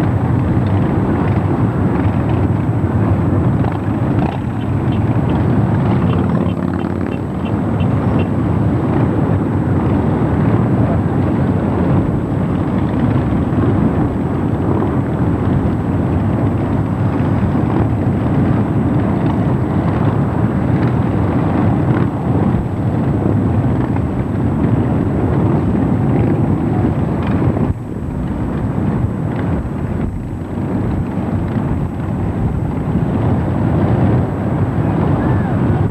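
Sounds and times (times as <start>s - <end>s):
motorcycles rumbling past: 0.0s - 35.9s.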